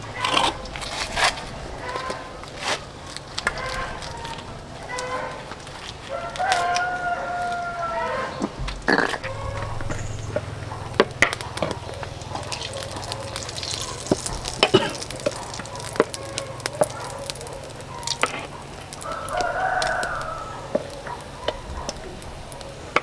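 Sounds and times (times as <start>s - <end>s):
rooster crowing: 6.1s - 8.6s, 9.2s - 22.9s
low steady hum: 9.2s - 16.7s.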